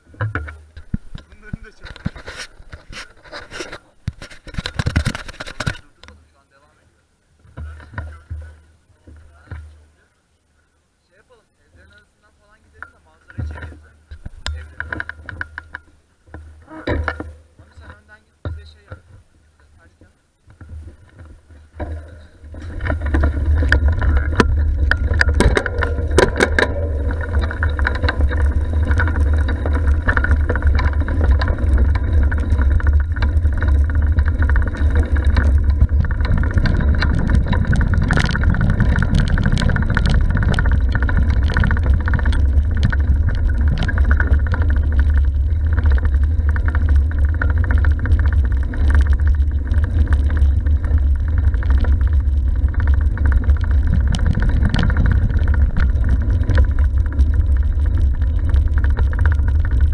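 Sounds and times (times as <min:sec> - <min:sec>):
wind buffeting microphone: 0:20.6 - 0:59.9
sharp rattling clicks: 0:21.8 - 0:59.9.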